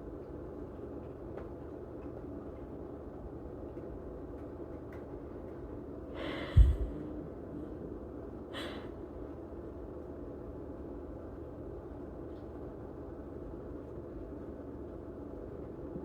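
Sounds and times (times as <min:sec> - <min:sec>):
faint steady hum: 0:00.0 - 0:16.0
pet breathy huffs: 0:06.1 - 0:09.0.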